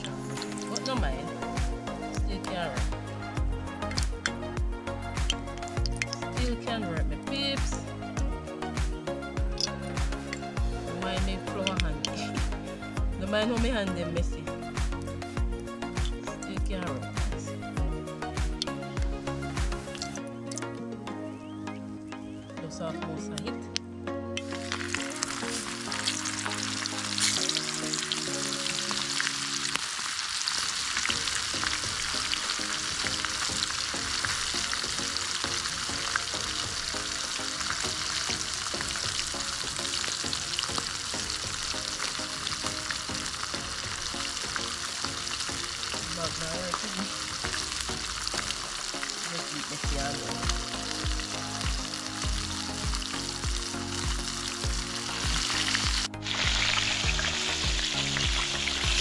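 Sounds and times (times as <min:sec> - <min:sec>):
background music: 0:00.0 - 0:59.0
fish frying in oil: 0:55.4 - 0:59.0.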